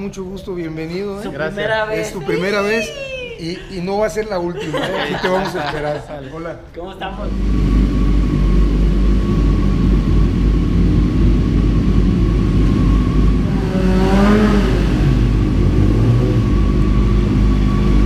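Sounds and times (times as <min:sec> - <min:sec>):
motorcycle engines rumbling: 0:07.0 - 0:18.0
motorcycle engine revving: 0:07.2 - 0:18.0.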